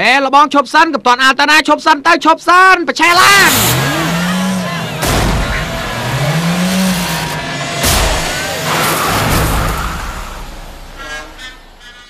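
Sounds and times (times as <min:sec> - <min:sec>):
car engine revving: 0:03.1 - 0:12.0
sharp engine bangs: 0:03.1 - 0:12.0.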